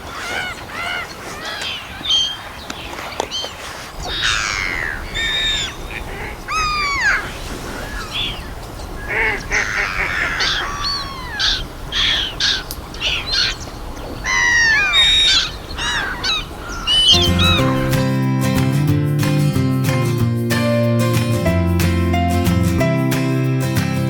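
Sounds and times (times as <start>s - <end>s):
birds making harsh descending calls: 0.0s - 18.1s.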